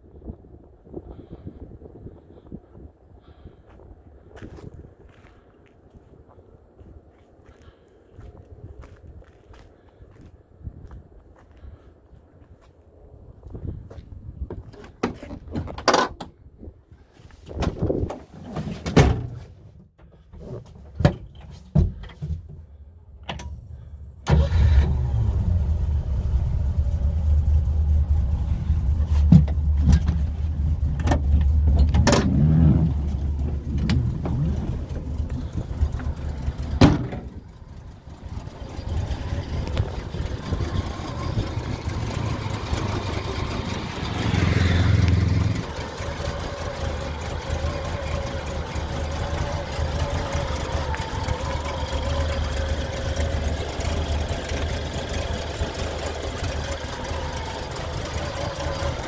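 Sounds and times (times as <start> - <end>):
engine starting and running: 20.1 - 59.0.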